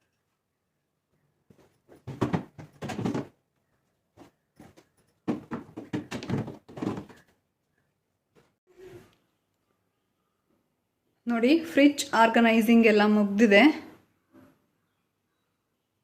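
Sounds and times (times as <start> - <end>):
containers knocking on fridge shelves: 2.0 - 3.3, 5.3 - 7.2.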